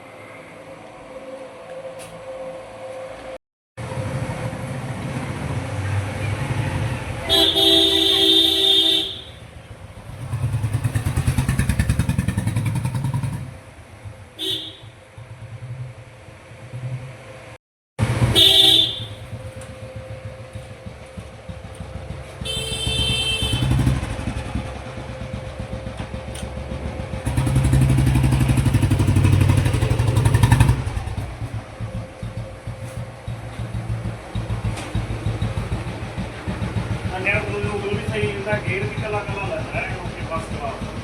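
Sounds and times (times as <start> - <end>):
engine revving: 3.8 - 13.9, 18.0 - 41.0
motorcycle engine running: 3.8 - 17.2, 18.0 - 41.0
motorcycle horn: 7.2 - 10.5, 14.4 - 15.0, 18.2 - 19.9, 22.2 - 24.5.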